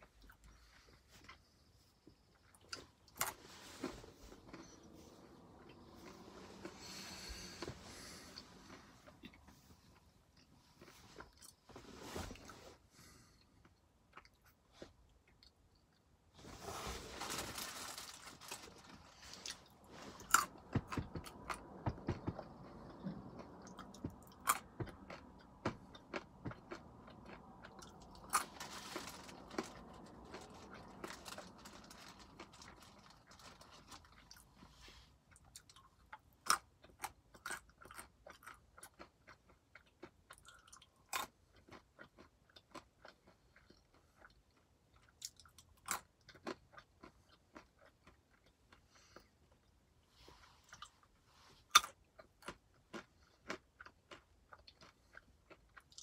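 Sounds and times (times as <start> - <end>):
almonds crunching: 17.2 - 21.5, 22.1 - 34.5.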